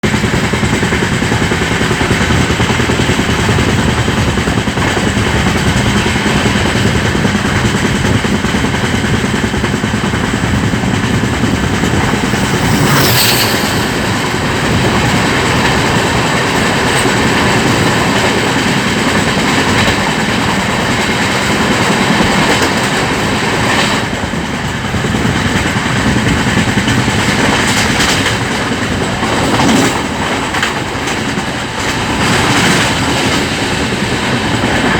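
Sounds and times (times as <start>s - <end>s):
train wheels rushing over rails: 0.0s - 34.9s
brief sharp noise: 12.0s - 15.6s.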